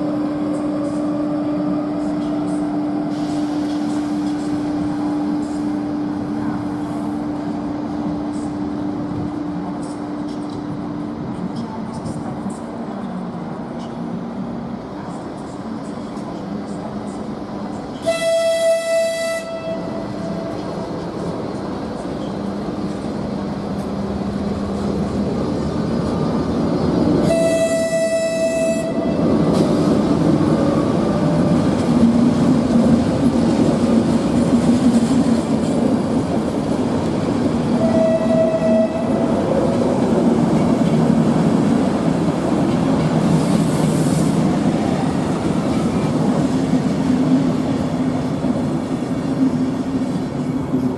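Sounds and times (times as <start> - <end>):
train rumble and rail clatter: 0.0 - 50.9
train horn blasts: 18.0 - 20.5, 27.2 - 29.3, 37.8 - 39.4.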